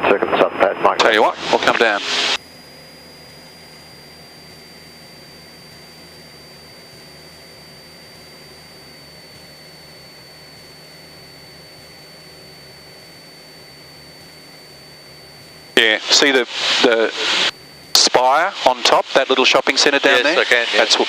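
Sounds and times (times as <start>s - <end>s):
thin high-pitched whine: 0.4s - 21.0s
electronic hiss: 15.8s - 21.0s.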